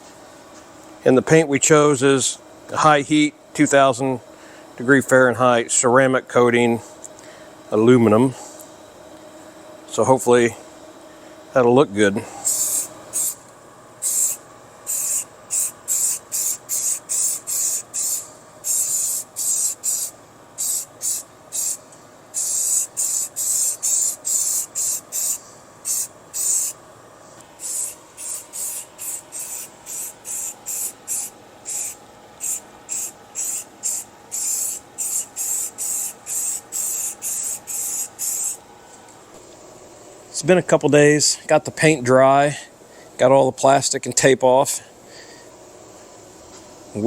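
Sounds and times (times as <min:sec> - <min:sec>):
spray can hissing: 0:12.5 - 0:13.4, 0:14.0 - 0:26.8, 0:27.6 - 0:38.6.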